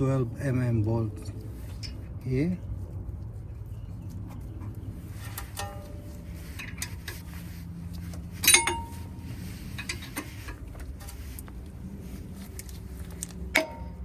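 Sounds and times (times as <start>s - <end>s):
loud ringing metallic clank: 8.4s - 9.2s.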